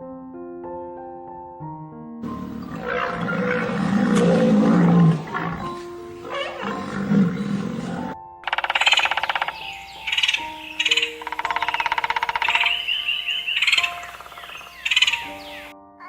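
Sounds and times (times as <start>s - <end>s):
light background music: 0.6s - 16.0s
big cat roaring: 2.2s - 8.2s.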